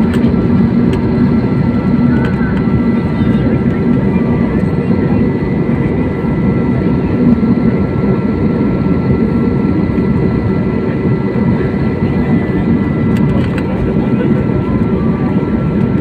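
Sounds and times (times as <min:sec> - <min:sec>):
airliner engines rumbling: 0:00.0 - 0:16.0
high engine whine: 0:00.0 - 0:16.0.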